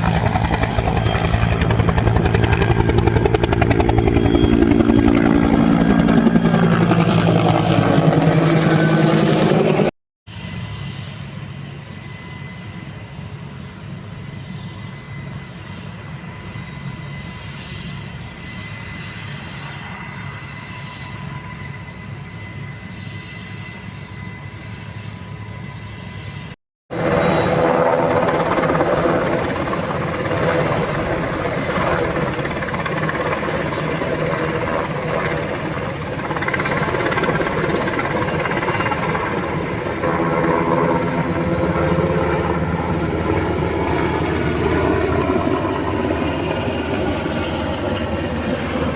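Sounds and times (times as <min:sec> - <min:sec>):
aircraft turbine engine running: 0:00.0 - 0:48.9.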